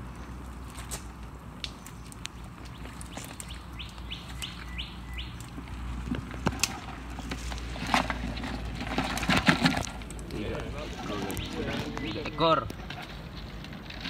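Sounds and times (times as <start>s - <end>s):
bird calling rising notes: 2.7s - 5.5s.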